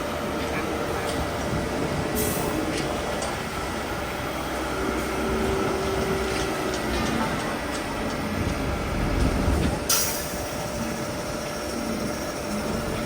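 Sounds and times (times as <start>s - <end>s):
diesel truck rumbling: 0.0s - 13.0s
air hiss: 9.9s - 10.7s.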